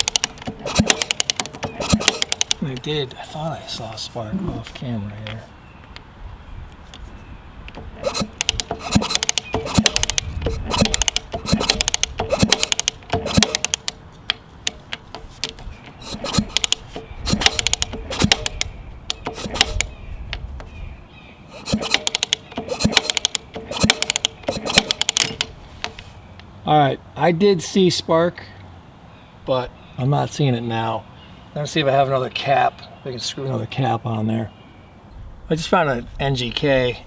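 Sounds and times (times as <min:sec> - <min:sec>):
kickstarter mechanical clicking: 0:00.0 - 0:02.9, 0:07.6 - 0:20.4, 0:21.5 - 0:26.0.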